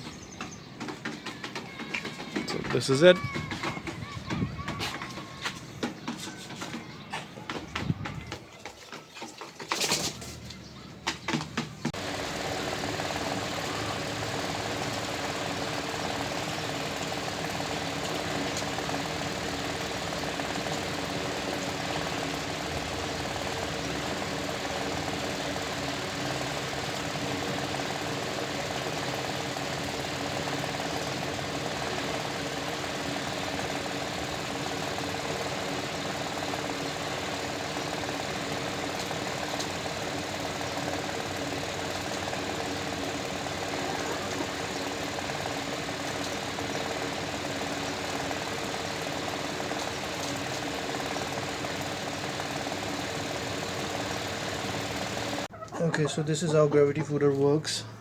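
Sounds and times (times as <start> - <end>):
motor humming: 0.0 - 8.3, 11.2 - 55.5.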